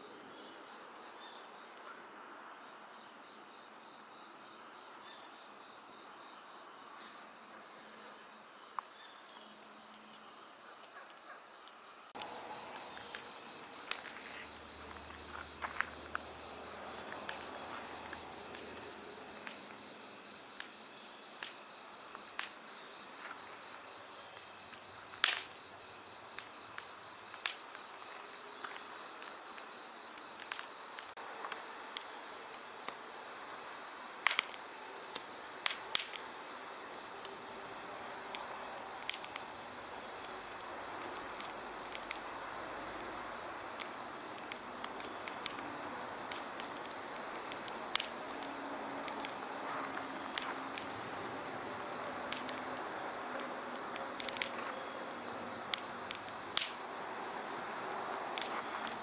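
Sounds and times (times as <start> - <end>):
insects trilling: 0.0 - 59.0
campfire crackling and popping: 11.6 - 57.0, 58.3 - 59.0.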